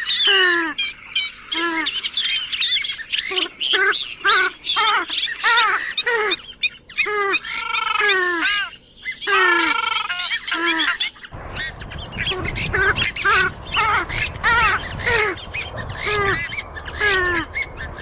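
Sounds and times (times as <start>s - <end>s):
swamphen squawking: 7.0s - 18.0s
low rumble: 11.4s - 18.0s
swamphen rattling calls: 11.4s - 18.0s.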